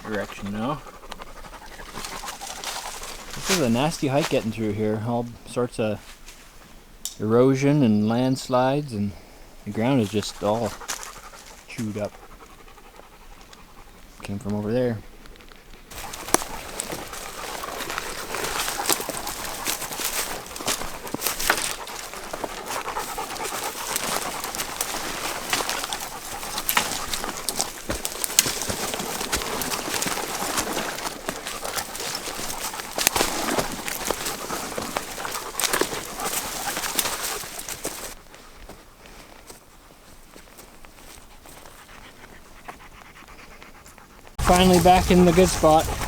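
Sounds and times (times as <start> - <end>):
hard panting breaths: 0.0 - 4.2, 9.2 - 14.2, 15.9 - 38.2, 41.0 - 46.0
footsteps: 0.0 - 4.7, 15.3 - 39.6, 44.4 - 46.0
brush crackling and snapping: 1.8 - 4.4, 15.2 - 38.2, 44.4 - 46.0.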